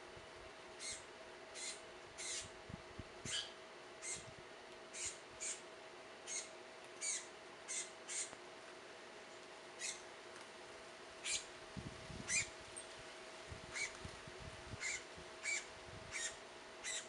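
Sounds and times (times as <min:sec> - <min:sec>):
faint steady hum: 0:00.0 - 0:17.0
songbird chip calls: 0:00.8 - 0:01.0, 0:01.6 - 0:02.5, 0:03.3 - 0:04.2, 0:05.0 - 0:05.6, 0:06.3 - 0:08.3, 0:09.8 - 0:10.0, 0:11.2 - 0:11.5, 0:12.3 - 0:12.5, 0:14.8 - 0:17.0.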